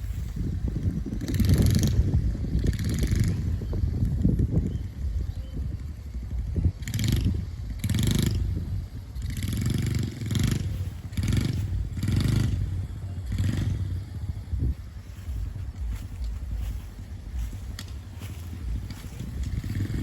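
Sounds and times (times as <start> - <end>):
mini dirt bike engine running: 0.0 - 20.0.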